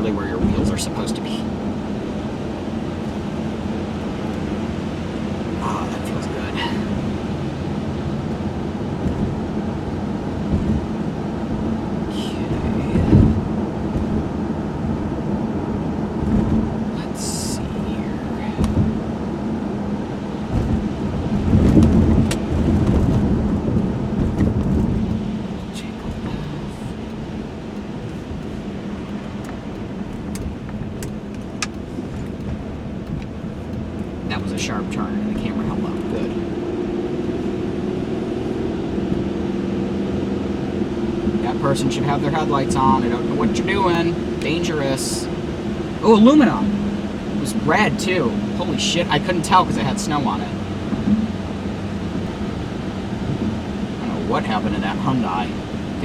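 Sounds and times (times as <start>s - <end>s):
car engine and tyre rumble: 0.0s - 56.0s
low thump: 10.5s - 10.8s, 20.5s - 25.2s.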